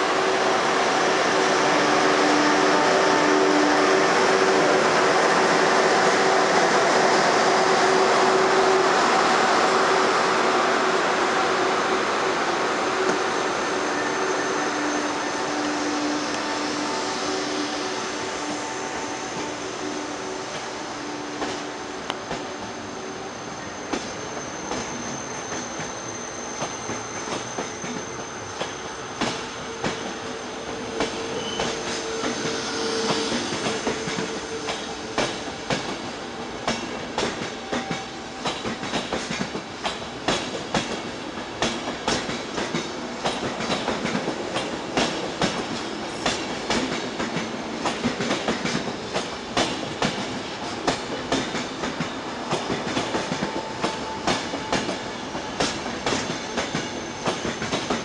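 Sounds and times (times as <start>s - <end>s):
wheel squeal: 22.9s - 35.0s
train wheels clicking over rail joints: 26.6s - 58.0s.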